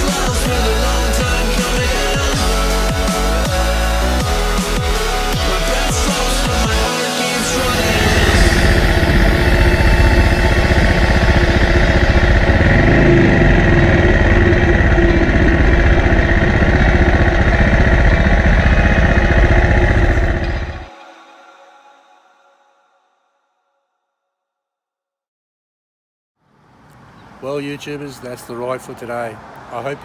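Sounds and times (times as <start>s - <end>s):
motorcycle engine running: 0.0s - 20.9s.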